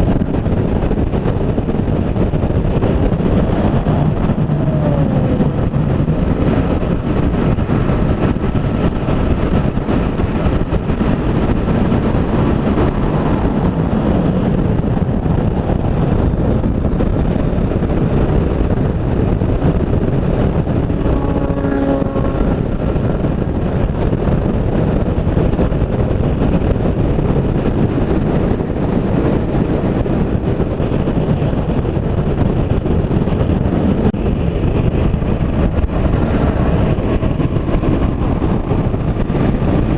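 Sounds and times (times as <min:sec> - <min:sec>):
motorcycle cruising on highway: 0:00.0 - 0:39.9
vehicle horn: 0:20.8 - 0:22.7.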